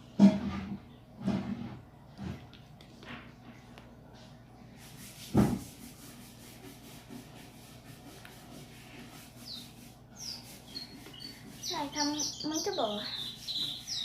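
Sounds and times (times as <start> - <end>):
bird chirp: 9.2 - 14.0.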